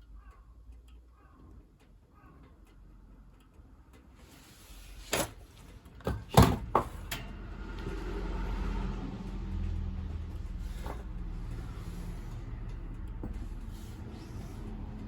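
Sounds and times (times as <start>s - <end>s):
rushing noise with low rumble: 7.0s - 15.0s.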